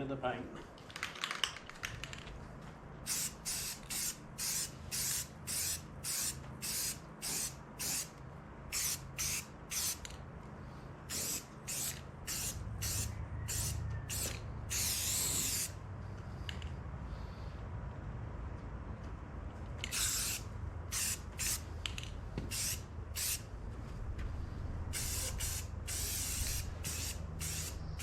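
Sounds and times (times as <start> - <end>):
spray paint can hissing: 3.0 - 8.1, 8.7 - 10.1, 11.1 - 15.8, 19.8 - 21.6, 22.5 - 23.4, 24.9 - 28.0.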